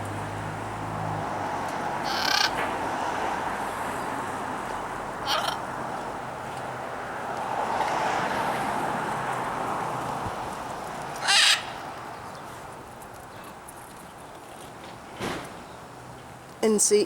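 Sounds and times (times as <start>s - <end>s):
bird harsh squawk: 2.0s - 2.6s, 5.2s - 5.6s, 11.2s - 11.8s.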